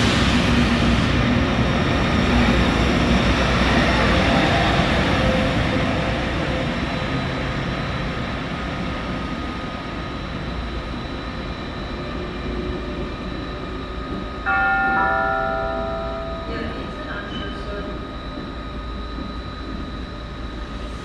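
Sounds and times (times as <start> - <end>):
train running noise: 0.0 - 21.0
descending steady tones: 14.4 - 19.3.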